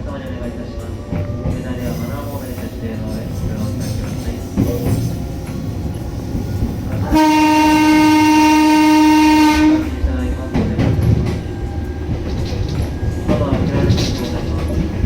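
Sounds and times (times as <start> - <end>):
train rumbling on rails: 0.0 - 15.0
train horn: 7.1 - 10.0.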